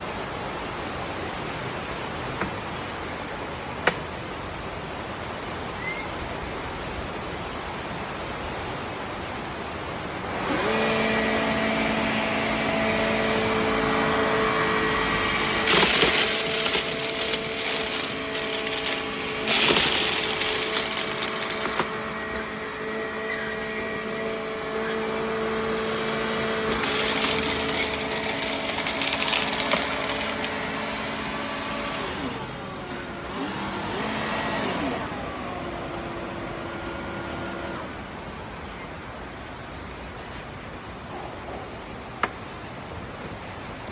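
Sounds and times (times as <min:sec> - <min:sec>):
vacuum cleaner motor whine: 0:10.2 - 0:38.0.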